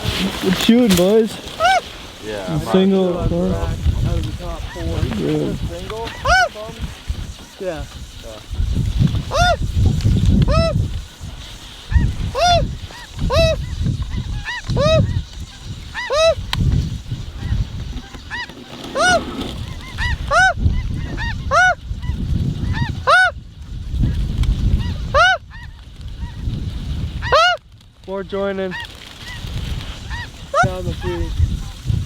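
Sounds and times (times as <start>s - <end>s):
snow goose honks: 0.0s - 3.6s, 4.5s - 7.6s, 9.2s - 9.6s, 11.9s - 16.5s, 17.4s - 23.4s, 24.8s - 26.4s, 27.2s - 27.6s.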